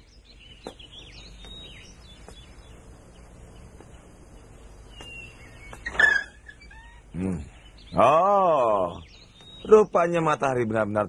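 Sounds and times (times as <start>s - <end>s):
small birds chirping: 0.0s - 11.0s
steady low hum: 0.0s - 11.0s.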